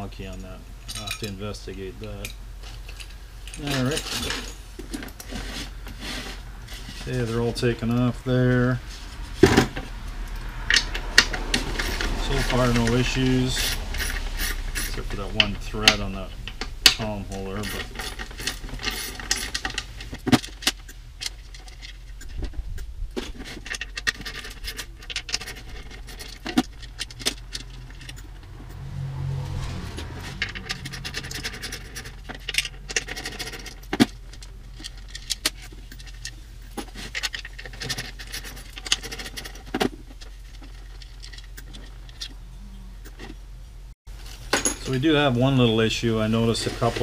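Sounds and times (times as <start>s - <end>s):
light metal scraping: 0.2s - 43.4s, 44.1s - 47.0s
metal parts clicking and clinking: 0.3s - 6.4s, 9.4s - 22.6s, 23.2s - 28.4s, 30.4s - 42.4s, 44.3s - 45.2s.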